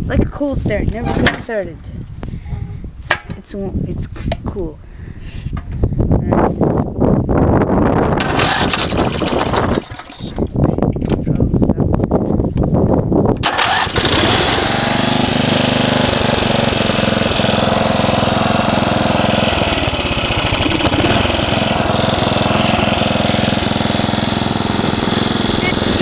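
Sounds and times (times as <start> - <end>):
lawn tractor engine running: 8.2 - 10.5, 13.4 - 26.0
starter motor cranking: 8.2 - 10.5, 13.4 - 26.0.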